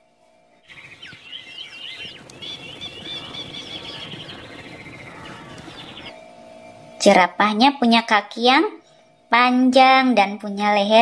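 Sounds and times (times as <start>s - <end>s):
outdoor background noise: 0.0s - 11.0s
birds chirping and trilling: 0.5s - 7.6s.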